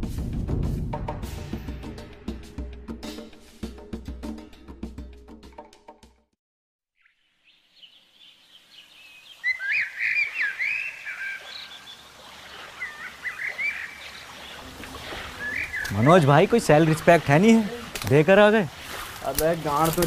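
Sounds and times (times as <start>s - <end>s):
birds chirping and warbling: 7.0s - 18.1s
faint outdoor ambience: 7.2s - 20.0s.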